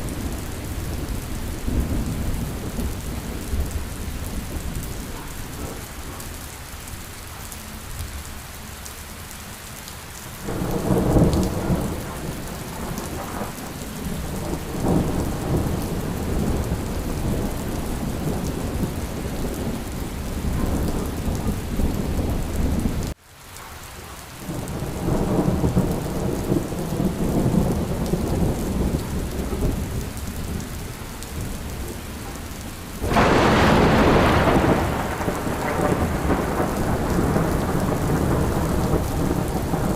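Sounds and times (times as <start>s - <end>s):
steady rain: 0.0s - 39.9s
rolling thunder: 10.4s - 23.2s, 24.4s - 30.8s, 31.4s - 39.9s.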